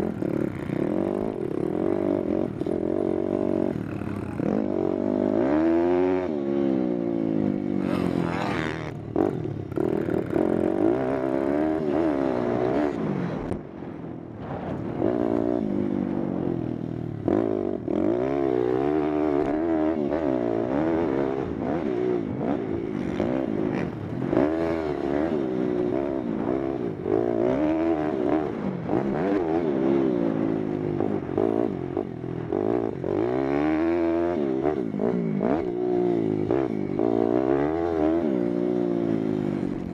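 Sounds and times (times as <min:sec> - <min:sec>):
small motorbike engine revving: 0:07.8 - 0:12.8.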